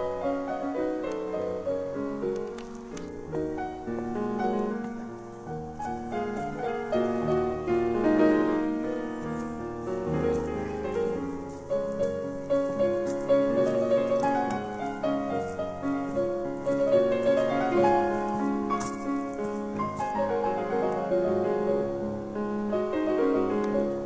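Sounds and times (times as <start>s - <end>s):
slow gentle piano music: 0.0s - 24.0s.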